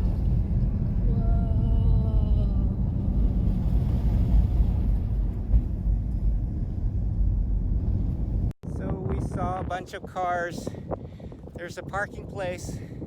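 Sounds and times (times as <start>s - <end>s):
car rumbling on road: 0.0s - 8.6s.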